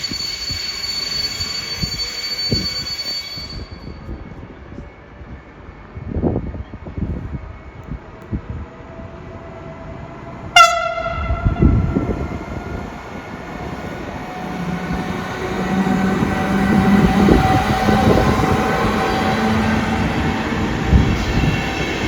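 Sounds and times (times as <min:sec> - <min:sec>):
train traction hum and whine: 0:00.0 - 0:22.0
locomotive horn blast: 0:10.6 - 0:12.2.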